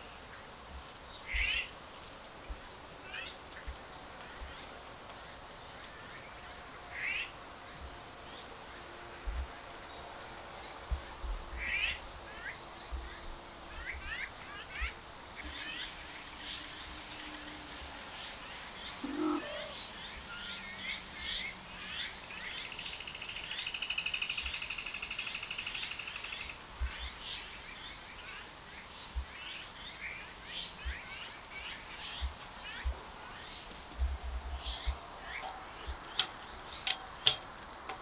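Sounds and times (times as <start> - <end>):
small birds chirping: 18.2 - 24.7, 25.7 - 38.0
lower bird call: 18.8 - 20.7.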